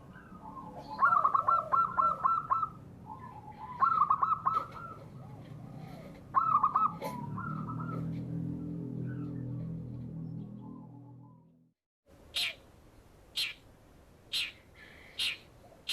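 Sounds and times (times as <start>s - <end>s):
dove cooing: 0.1s - 8.2s.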